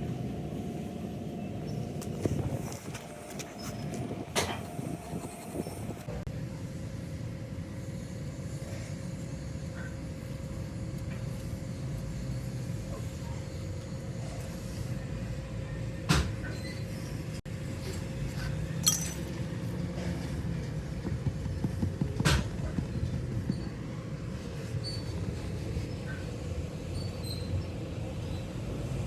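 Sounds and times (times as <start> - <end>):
factory machinery hum: 0.0 - 29.0
sharp metallic clinks: 18.8 - 19.4.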